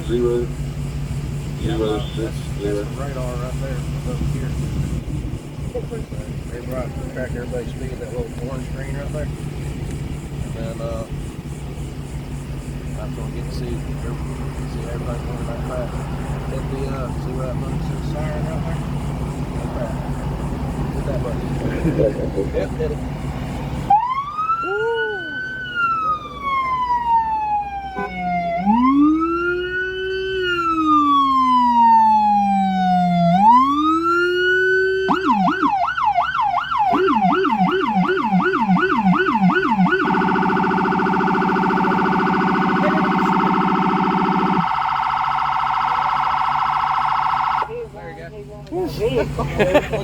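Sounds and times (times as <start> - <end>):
police siren wailing and yelping: 23.8 - 47.7.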